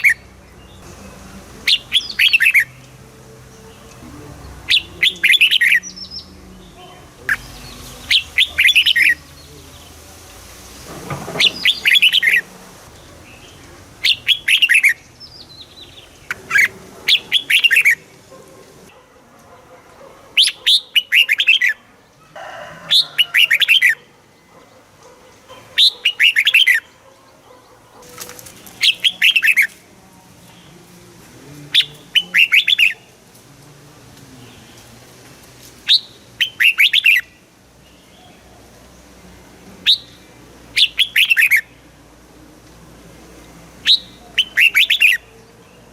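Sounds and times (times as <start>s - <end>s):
bird singing bubbly phrases: 1.6s - 3.0s, 3.8s - 10.0s, 11.4s - 18.3s, 28.8s - 29.7s, 31.7s - 33.1s, 35.9s - 37.4s, 39.8s - 41.8s, 43.8s - 45.3s.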